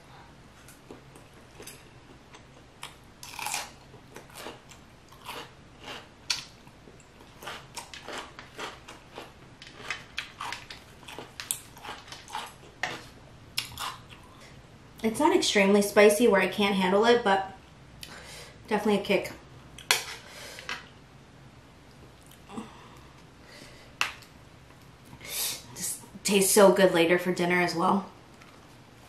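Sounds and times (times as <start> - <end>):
person chewing: 0.6 - 14.4.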